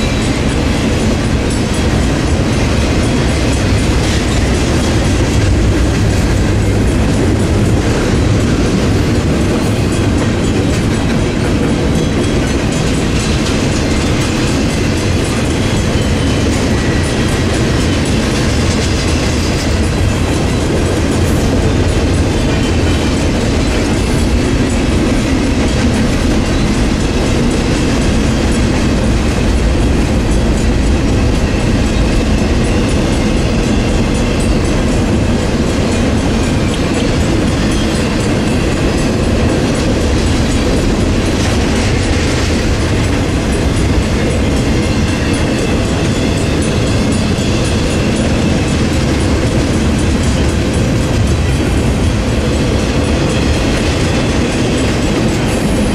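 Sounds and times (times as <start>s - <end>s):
freight train wheels rumbling: 0.0s - 55.9s.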